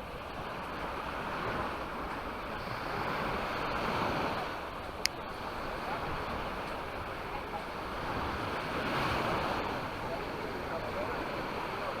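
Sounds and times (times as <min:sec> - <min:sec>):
sea waves breaking on beach: 0:00.0 - 0:12.0.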